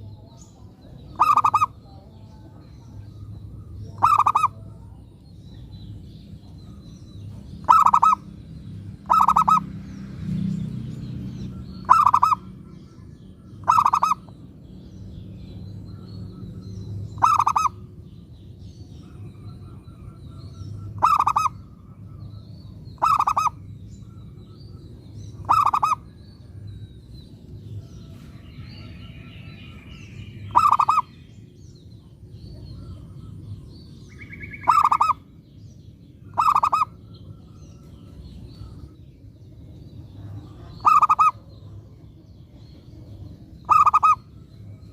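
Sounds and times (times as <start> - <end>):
small birds chirping: 0.0 - 44.9
dove cooing: 1.1 - 1.8, 3.6 - 5.0, 7.6 - 8.2, 9.0 - 9.6, 11.5 - 12.7, 13.6 - 14.3, 17.2 - 17.8, 19.0 - 22.4, 23.0 - 24.3, 25.4 - 26.2, 30.5 - 31.1, 34.3 - 35.2, 36.3 - 37.9, 40.2 - 41.5, 43.7 - 44.4.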